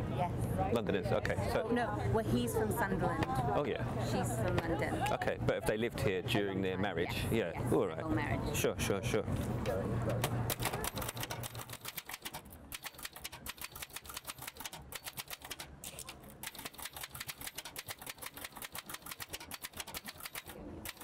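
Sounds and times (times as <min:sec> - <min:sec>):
manual typewriter keystrokes: 0:10.2 - 0:21.0.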